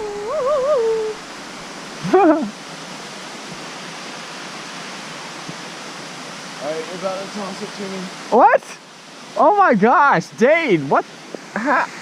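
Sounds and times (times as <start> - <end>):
wavering vocal call: 0.0 - 1.2
rushing mountain stream: 0.0 - 12.0.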